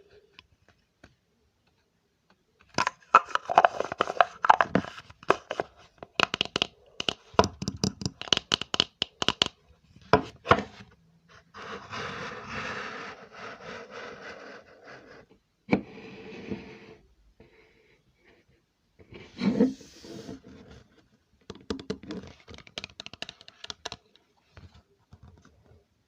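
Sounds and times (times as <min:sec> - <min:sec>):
tapping on hard object: 0:06.2 - 0:09.6.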